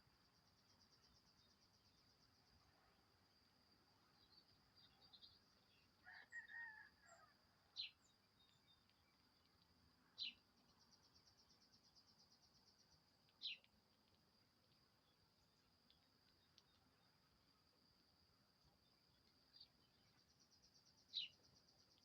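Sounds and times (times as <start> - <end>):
sharp bird chirps: 13.4 - 13.7.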